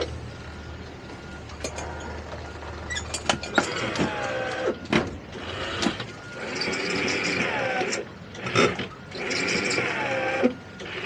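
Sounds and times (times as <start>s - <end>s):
low engine hum: 0.0s - 11.0s
anchor chain windlass knocks and creaks: 1.6s - 11.0s.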